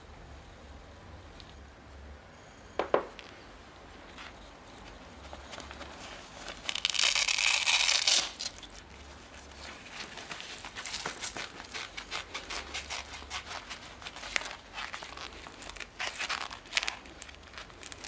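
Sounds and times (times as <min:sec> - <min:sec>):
short knock: 0:02.8 - 0:03.2
velcro ripping open: 0:06.5 - 0:08.8, 0:10.6 - 0:18.0.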